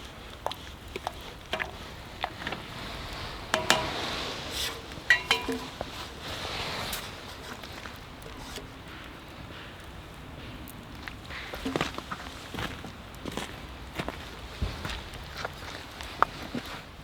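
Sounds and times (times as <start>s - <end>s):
metal utensils clinking on dishes: 3.2s - 7.1s.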